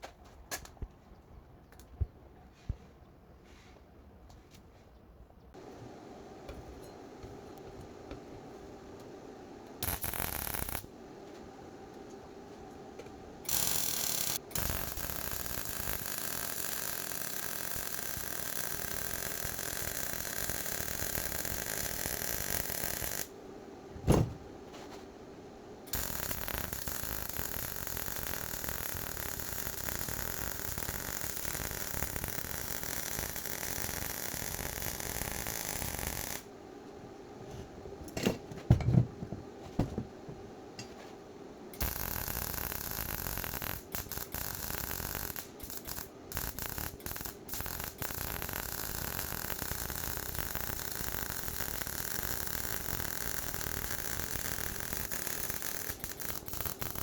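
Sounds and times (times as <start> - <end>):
steady hissing: 5.6 - 23.4.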